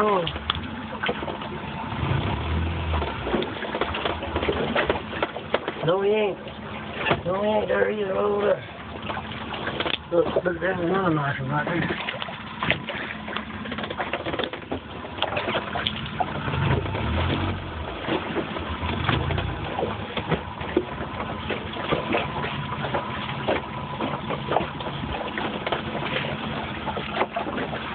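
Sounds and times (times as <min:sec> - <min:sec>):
boat motor hum: 0:00.0 - 0:27.9
water sloshing against hull: 0:00.0 - 0:27.9
low rumble: 0:06.3 - 0:27.9.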